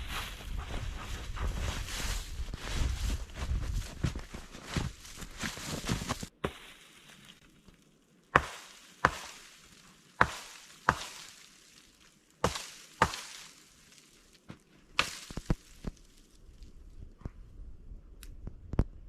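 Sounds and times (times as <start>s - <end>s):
chopping strokes: 8.4s - 9.5s, 10.2s - 11.4s, 12.4s - 13.6s.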